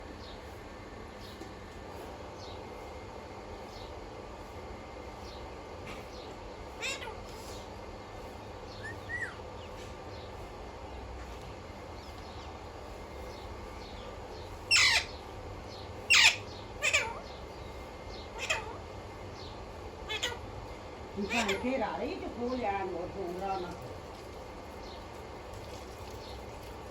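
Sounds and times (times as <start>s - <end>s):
parrot calls: 6.8s - 7.5s, 8.7s - 9.5s, 14.7s - 15.2s, 16.1s - 17.4s, 18.2s - 18.9s, 20.0s - 20.4s, 21.2s - 21.7s
parrot whistle: 8.8s - 9.4s.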